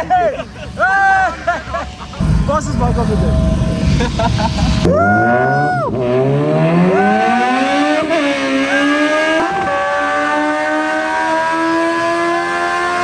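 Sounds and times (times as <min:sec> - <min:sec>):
motorcycle engine revving through gears: 0:04.7 - 0:13.0.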